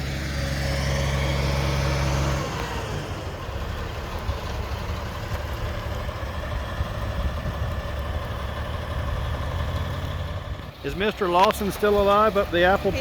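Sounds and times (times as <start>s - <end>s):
motorcycle engine idling: 3.2s - 13.0s.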